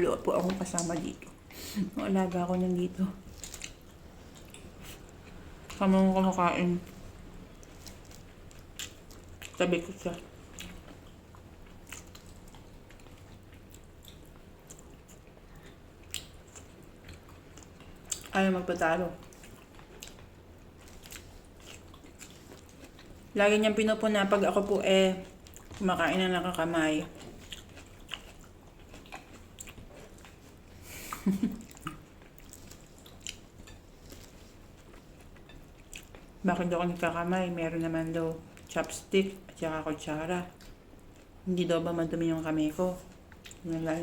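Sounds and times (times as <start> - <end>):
person chewing with mouth clicks: 10.5 - 18.3, 19.2 - 23.3, 27.1 - 36.4, 43.1 - 43.7.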